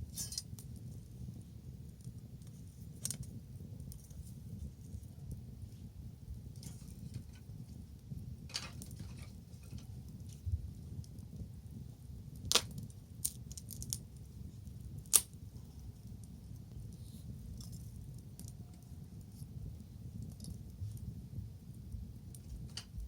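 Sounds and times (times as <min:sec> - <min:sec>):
bonfire crackling and popping: 0:00.0 - 0:23.0
low steady fire rumble: 0:00.0 - 0:23.0.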